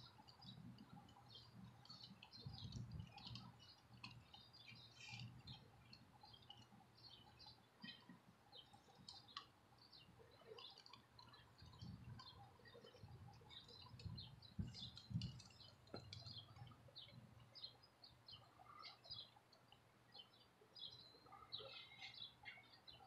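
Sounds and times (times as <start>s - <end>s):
small birds chirping: 0.0s - 23.0s
soft low thumps: 13.8s - 17.2s.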